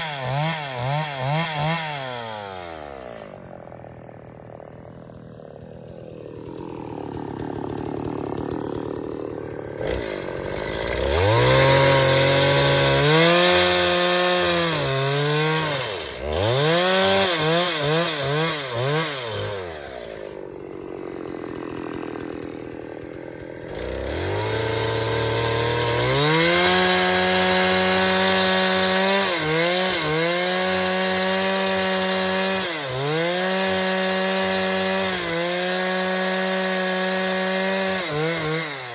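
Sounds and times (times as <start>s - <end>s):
chainsaw revving and cutting wood: 0.0s - 38.9s.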